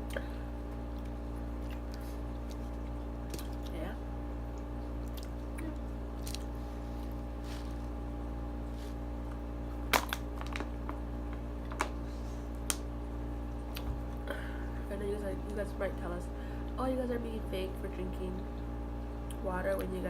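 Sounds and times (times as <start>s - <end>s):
steady electrical hum: 0.0s - 20.0s
crunchy chewing: 0.1s - 3.8s, 4.4s - 9.4s.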